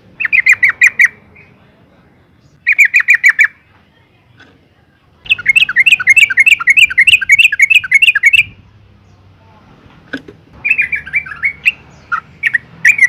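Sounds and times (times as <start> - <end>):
bird chirping and chattering: 0.0 - 3.7, 5.2 - 9.3, 10.6 - 13.0.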